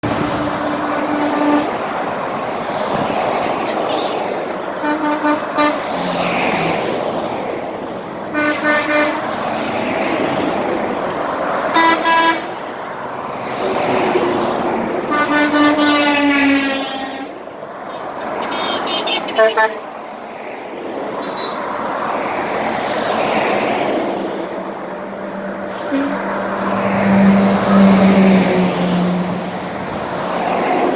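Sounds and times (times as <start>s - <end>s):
truck horns honking: 0.0s - 2.3s, 3.8s - 6.8s, 8.2s - 9.5s, 11.6s - 12.8s, 14.9s - 20.0s, 21.1s - 21.9s, 24.4s - 29.9s
engines and tyres of passing trucks: 0.0s - 30.9s.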